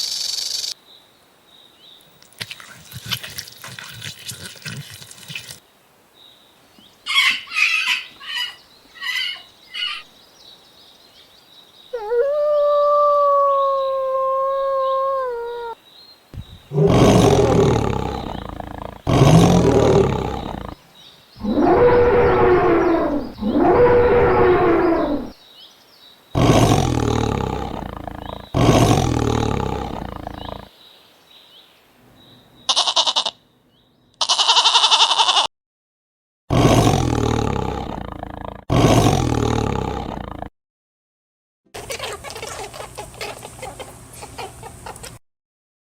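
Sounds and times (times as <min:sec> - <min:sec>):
big cat roaring: 0:16.4 - 0:20.8, 0:21.4 - 0:25.4, 0:26.4 - 0:30.7, 0:36.5 - 0:40.5
held animal call: 0:16.4 - 0:20.8, 0:21.4 - 0:25.4
short animal sound bursts: 0:16.4 - 0:20.8, 0:21.4 - 0:25.4, 0:26.4 - 0:30.7, 0:36.5 - 0:40.5.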